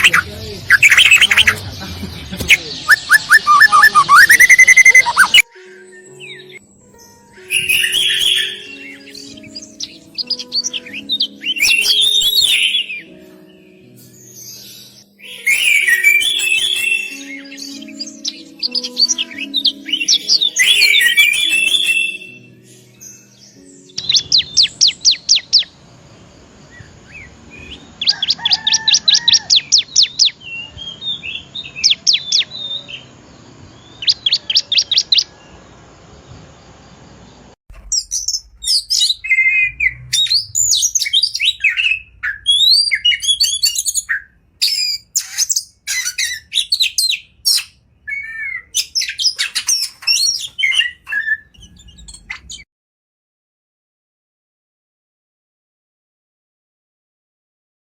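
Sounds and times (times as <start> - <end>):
bird trilling: 0.0 - 1.6, 2.4 - 5.4, 38.0 - 52.5
bird chattering song: 0.0 - 6.6, 23.9 - 25.7, 37.9 - 52.6.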